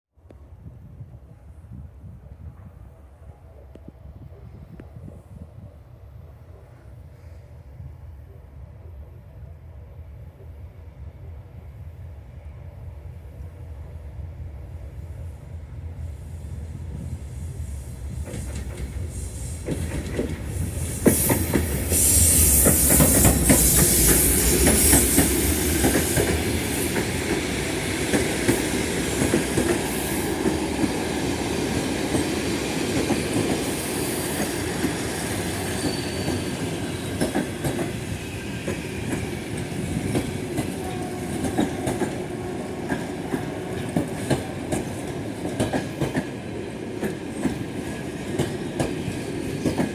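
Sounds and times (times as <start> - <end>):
train wheels clacking on rails: 17.0 - 49.9.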